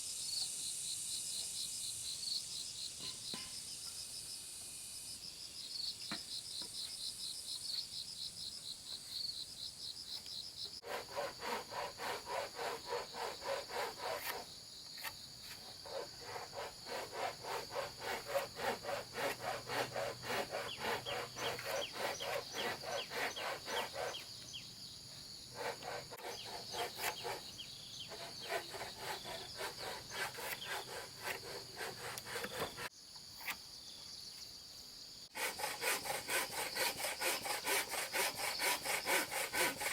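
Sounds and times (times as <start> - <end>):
insects chirping: 0.0 - 39.9
hand saw cutting wood: 10.8 - 24.4, 25.5 - 33.6, 35.3 - 39.9.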